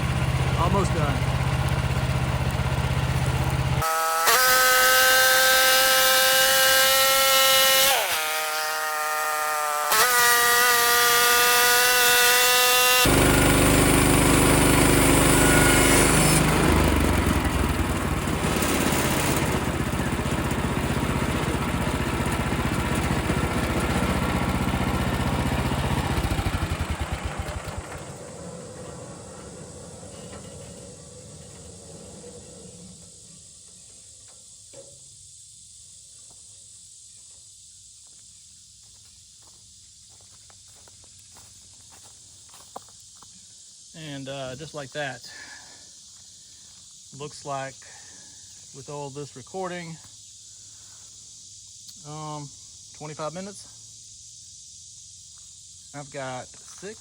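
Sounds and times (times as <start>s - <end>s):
sawmill engine whining: 0.0s - 34.4s.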